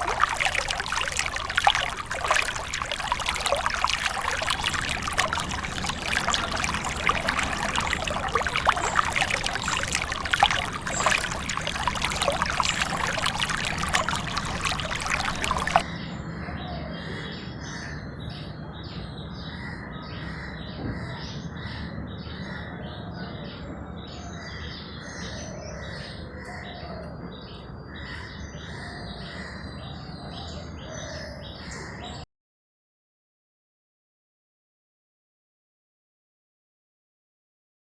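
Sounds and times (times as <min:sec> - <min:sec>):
running water hiss: 0:00.0 - 0:15.8
water splashing and pouring: 0:00.0 - 0:15.8.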